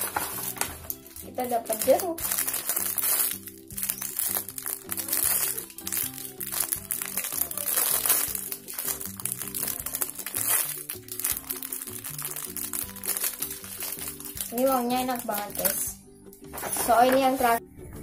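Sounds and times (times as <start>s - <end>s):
plastic bag crinkling: 0.0s - 17.6s
background music with low notes: 0.0s - 18.0s.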